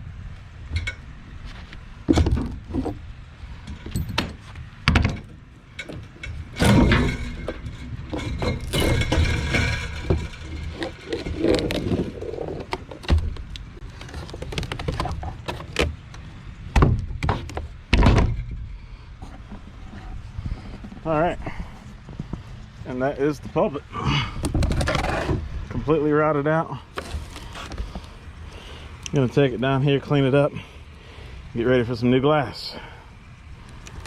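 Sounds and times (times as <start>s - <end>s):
scraping and rattling: 0.8s - 16.2s, 24.4s - 25.5s, 26.9s - 28.2s
knocks thuds and clanks: 2.0s - 3.0s, 3.7s - 13.5s, 16.7s - 18.8s.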